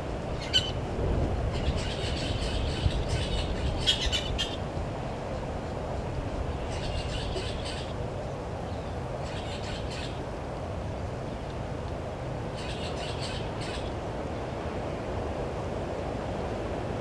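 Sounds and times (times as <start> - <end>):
wild birds chirping: 0.3 - 0.8, 1.5 - 4.7, 6.5 - 10.3, 12.5 - 14.0.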